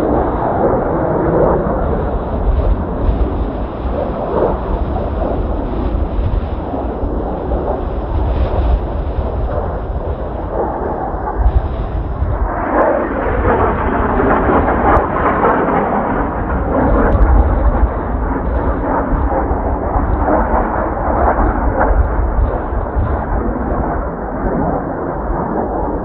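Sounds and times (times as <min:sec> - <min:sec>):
jet roar overhead: 0:00.0 - 0:26.0
wind buffeting microphone: 0:00.0 - 0:26.0.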